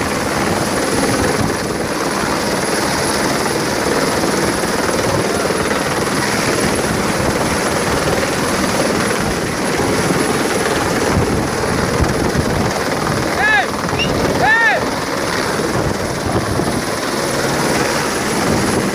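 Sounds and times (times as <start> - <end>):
helicopter hovering: 0.0 - 18.9.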